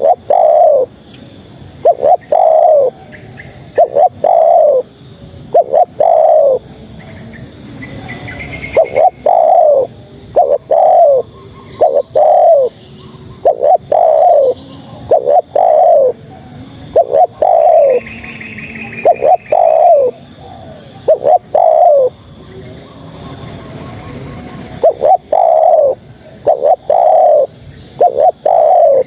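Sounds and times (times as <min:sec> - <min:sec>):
dove cooing: 0:00.0 - 0:29.0
faint high chirp: 0:16.9 - 0:29.0.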